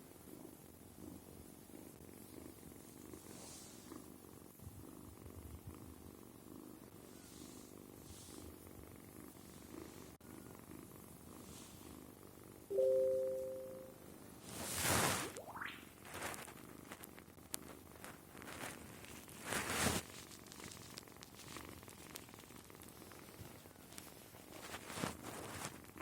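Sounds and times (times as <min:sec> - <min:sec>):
kitten purring: 0:00.0 - 0:12.7, 0:15.9 - 0:26.0
two-tone electronic chime: 0:12.7 - 0:14.0.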